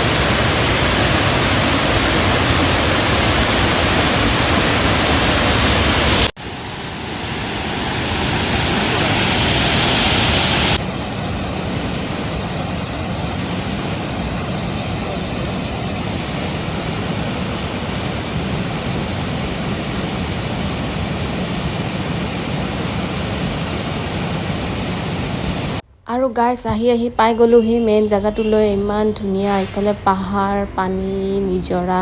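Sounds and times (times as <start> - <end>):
waterfall rushing: 0.0 - 25.8.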